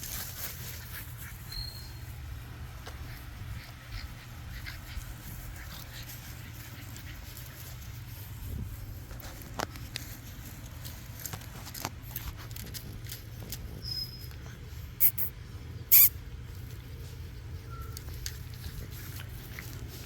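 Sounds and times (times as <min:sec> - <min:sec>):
puppies clicking and tapping: 0:09.1 - 0:15.3, 0:16.0 - 0:20.0
high squeak: 0:15.0 - 0:15.3, 0:15.9 - 0:16.1.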